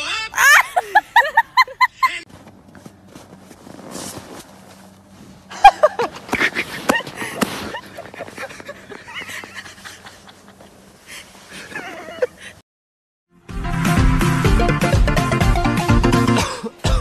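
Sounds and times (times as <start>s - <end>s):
short cries: 0.1s - 1.2s
man laughing: 0.4s - 2.2s, 5.5s - 10.7s, 11.6s - 12.6s
body landing in snow: 2.3s - 7.8s.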